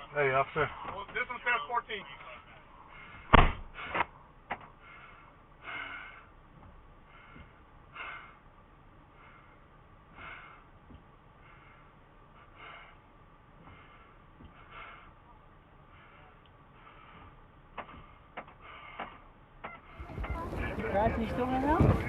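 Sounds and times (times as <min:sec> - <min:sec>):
close breathing: 0:02.1 - 0:22.0.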